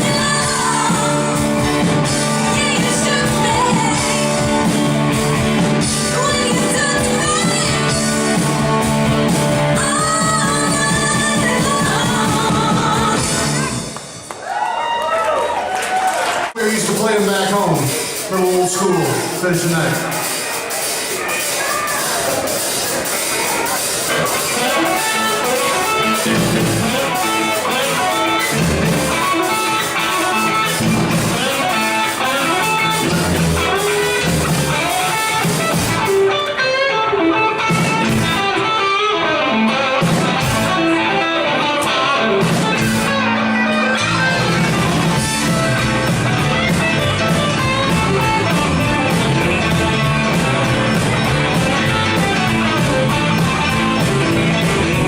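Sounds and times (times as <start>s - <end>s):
electric guitar: 0.0s - 14.6s, 15.6s - 55.0s
rock band playing live: 0.0s - 14.6s, 16.6s - 55.0s.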